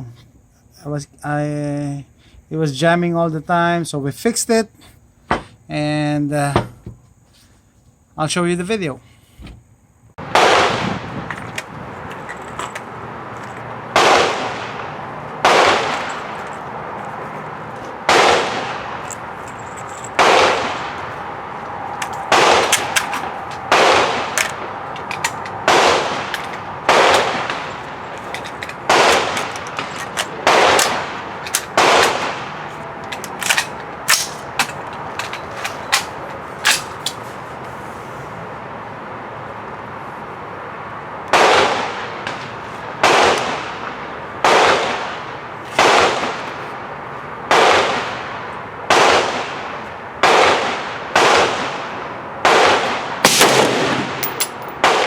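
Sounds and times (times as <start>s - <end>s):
rifle shots echoing: 10.3s - 11.0s, 13.9s - 37.2s, 41.3s - 46.5s, 47.5s - 48.3s, 48.9s - 55.0s.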